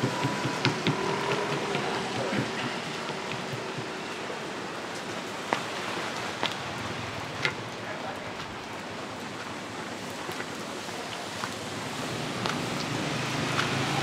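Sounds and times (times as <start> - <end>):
sharp taps: 0.0 - 4.0
steady rain hiss: 1.8 - 14.0.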